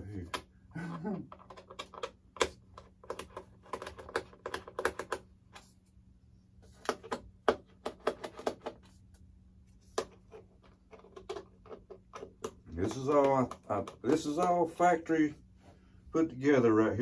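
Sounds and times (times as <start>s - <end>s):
plastic parts clicking and tapping: 0.2s - 5.6s, 6.8s - 8.9s, 9.9s - 14.8s.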